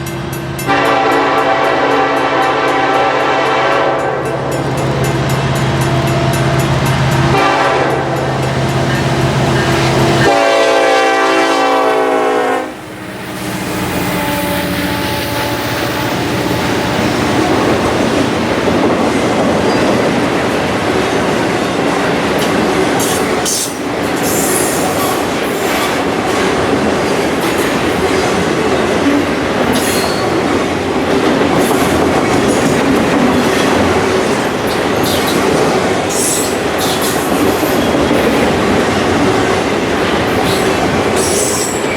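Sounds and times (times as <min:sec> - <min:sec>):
train wheels rumbling on rails: 0:00.0 - 0:41.9
train air horn: 0:00.7 - 0:04.5, 0:07.3 - 0:08.3, 0:10.1 - 0:12.9, 0:13.6 - 0:17.0.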